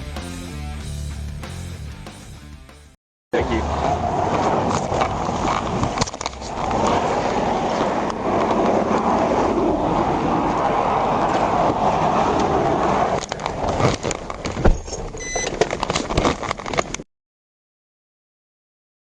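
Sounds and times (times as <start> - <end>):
road and tyre noise: 3.4 - 17.0.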